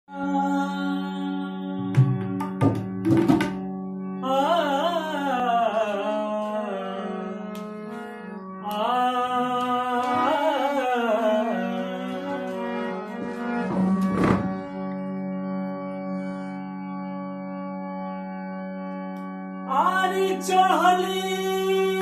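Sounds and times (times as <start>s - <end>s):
steady held drone: 0.2s - 22.0s
drum strokes: 1.9s - 3.6s
man singing wordless phrase: 19.7s - 22.0s.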